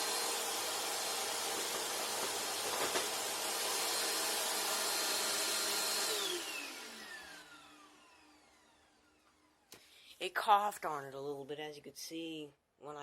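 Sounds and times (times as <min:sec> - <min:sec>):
vacuum cleaner motor winding down: 0:00.0 - 0:09.7.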